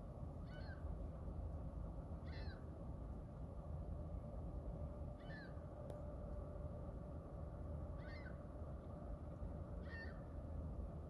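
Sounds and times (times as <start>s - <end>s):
low background rumble: 0.0s - 11.0s
bird cat-like call: 0.4s - 0.8s, 2.2s - 2.6s, 5.2s - 5.6s, 8.0s - 8.4s, 9.8s - 10.3s.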